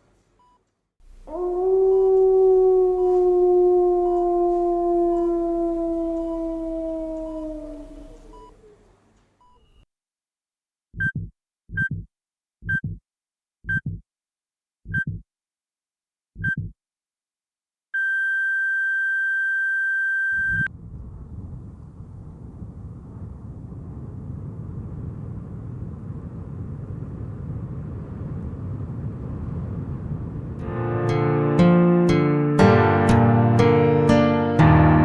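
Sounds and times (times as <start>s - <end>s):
low rumble of ambience: 1.0s - 9.5s, 20.4s - 30.7s
heart monitor beeping: 7.2s - 8.5s, 11.0s - 13.0s, 13.6s - 14.0s, 14.9s - 15.2s, 16.4s - 16.8s
low heartbeat thump: 11.0s - 13.0s, 13.6s - 14.0s, 14.9s - 15.2s, 16.4s - 16.8s.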